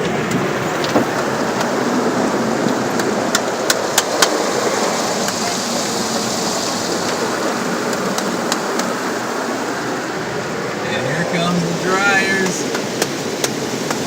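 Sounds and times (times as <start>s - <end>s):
car wash spray and brushes: 0.0s - 14.0s
taps on car body: 12.7s - 14.0s.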